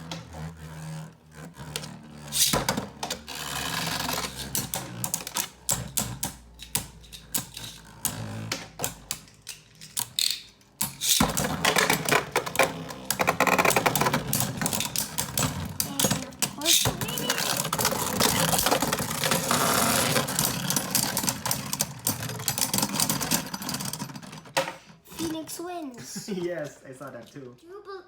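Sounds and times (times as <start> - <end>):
plastic spinning tops clicking: 1.5 - 23.5.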